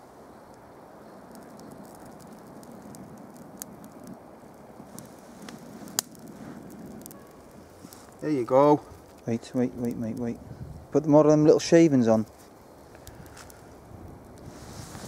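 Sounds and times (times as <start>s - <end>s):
small fire hissing and crackling: 0.0s - 15.0s
sharp fire pop: 4.8s - 8.2s.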